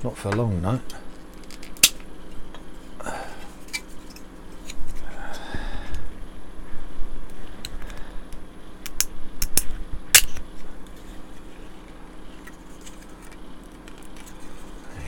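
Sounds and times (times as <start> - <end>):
plastic parts snapping: 1.4 - 2.0, 8.8 - 10.4.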